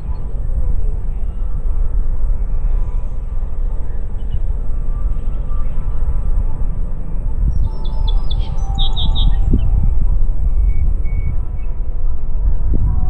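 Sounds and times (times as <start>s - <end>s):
wind buffeting microphone: 0.0s - 13.0s
faint background bird calls: 2.6s - 6.0s, 7.5s - 9.8s.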